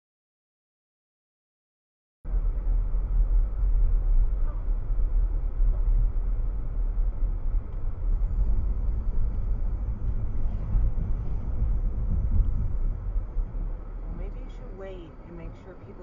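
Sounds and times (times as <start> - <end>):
car driving rumble: 2.3 - 16.0.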